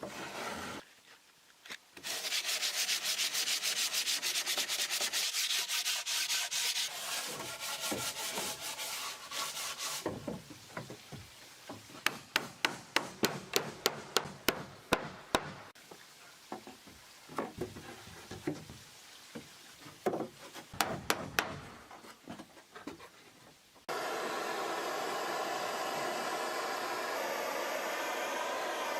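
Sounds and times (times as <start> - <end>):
steady hiss: 0.0 - 15.0, 23.3 - 28.9
wood being sanded: 2.0 - 10.4, 23.9 - 28.9.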